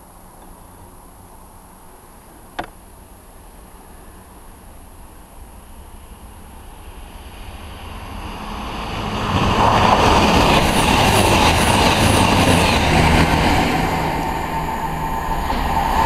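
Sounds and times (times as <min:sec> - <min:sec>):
train passing at speed: 0:03.4 - 0:16.0.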